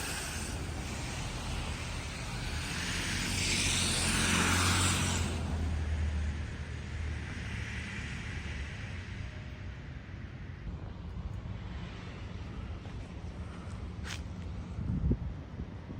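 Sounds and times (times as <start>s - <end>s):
vehicle passing by: 0.0s - 9.4s.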